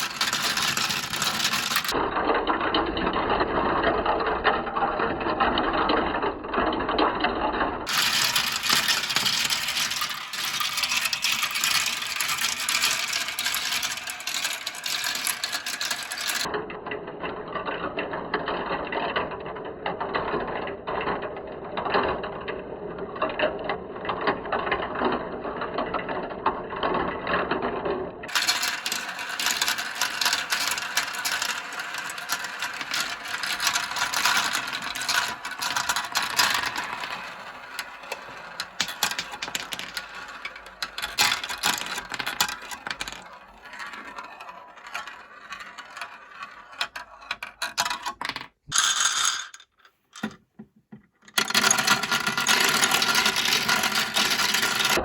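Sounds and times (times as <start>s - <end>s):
marbles rolling and clattering: 0.0s - 7.1s, 7.8s - 16.6s, 19.9s - 55.0s.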